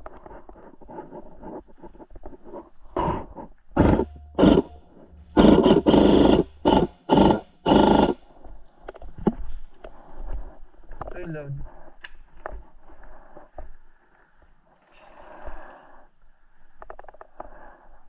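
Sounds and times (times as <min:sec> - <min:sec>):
electric guns firing bursts: 0:03.8 - 0:08.2.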